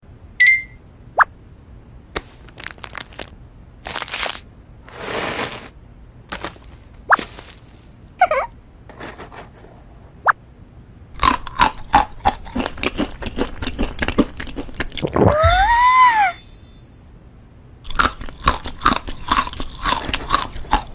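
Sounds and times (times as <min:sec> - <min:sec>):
crunchy food crunching: 0:02.6 - 0:04.4, 0:06.3 - 0:08.0, 0:11.2 - 0:15.2, 0:17.8 - 0:20.9.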